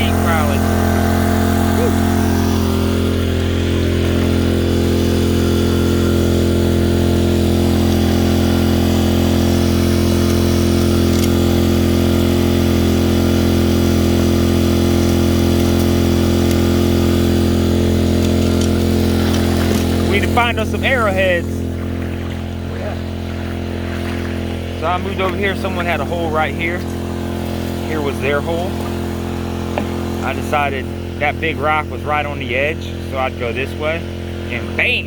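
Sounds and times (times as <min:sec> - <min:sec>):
small gasoline engine running: 0:00.0 - 0:35.0.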